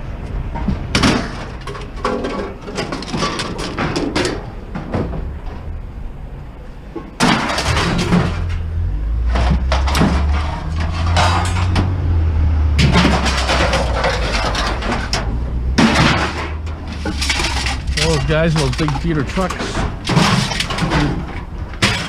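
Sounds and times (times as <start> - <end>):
heavy engine rumbling: 0.0 - 22.0
scrap metal clanging: 7.0 - 22.0.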